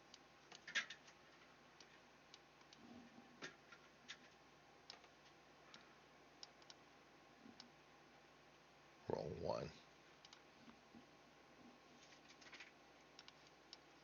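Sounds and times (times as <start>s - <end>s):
faint sharp clicks: 5.7s - 6.8s, 10.2s - 10.4s, 13.2s - 13.8s.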